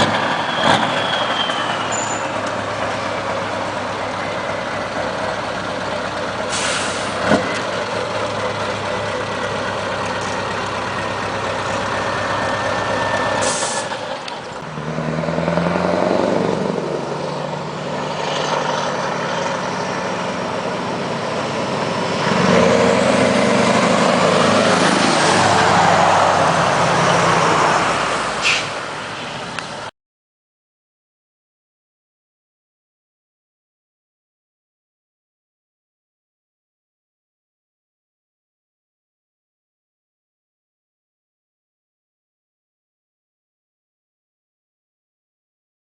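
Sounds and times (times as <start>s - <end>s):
truck engine revving: 0.0s - 29.8s
diesel truck engine idling: 2.4s - 14.7s
air brake hisses: 6.5s - 7.2s, 13.4s - 14.0s, 28.4s - 28.8s.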